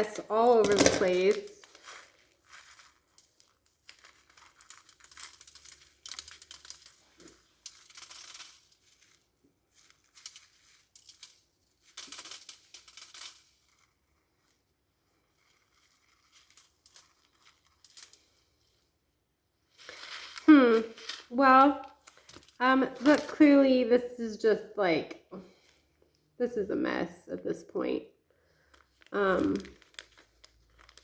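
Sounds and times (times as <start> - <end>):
frosting scraping and rustling: 0.0 - 23.9, 28.6 - 31.0.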